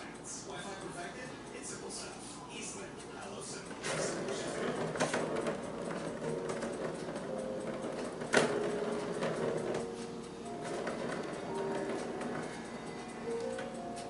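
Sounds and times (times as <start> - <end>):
ball rattling around plastic track: 3.8 - 9.9, 10.6 - 12.5.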